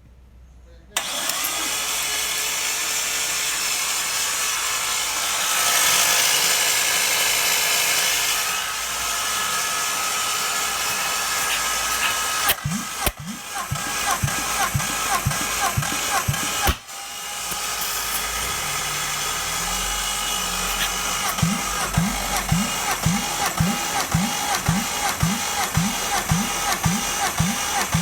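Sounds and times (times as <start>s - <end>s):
engine cranking electric whirring: 1.0s - 28.0s
short repeated pulses: 11.0s - 16.9s, 18.1s - 28.0s.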